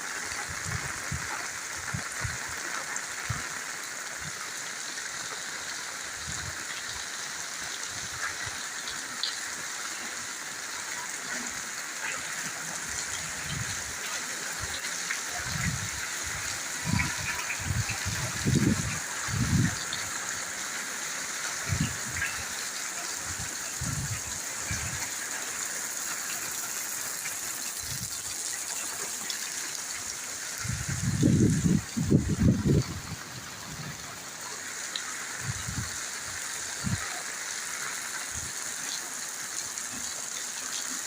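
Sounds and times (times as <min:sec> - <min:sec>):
rain hissing down: 0:00.0 - 0:41.0.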